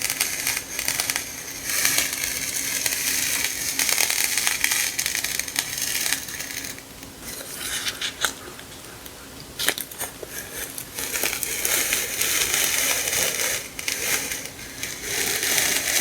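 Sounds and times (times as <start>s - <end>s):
sticker sheets crinkling: 0.0s - 16.0s.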